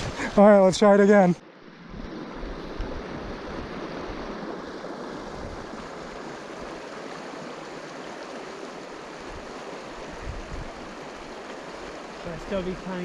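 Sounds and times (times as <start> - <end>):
river current rushing: 0.0 - 13.0
wind buffeting microphone: 1.8 - 7.0, 9.1 - 12.2.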